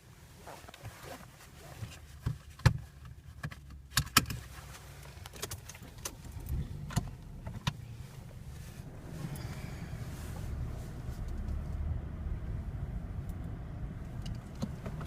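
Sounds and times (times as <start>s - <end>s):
sharp clicks and knocks: 5.2s - 7.8s.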